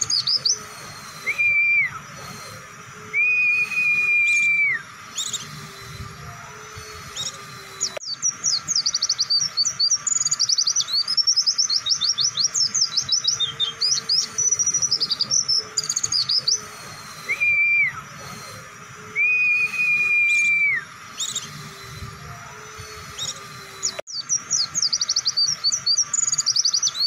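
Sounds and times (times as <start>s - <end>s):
bird chattering chirps: 0.0s - 2.7s, 3.4s - 5.7s, 6.6s - 18.7s, 22.6s - 27.0s
bird whistled notes: 0.0s - 27.0s.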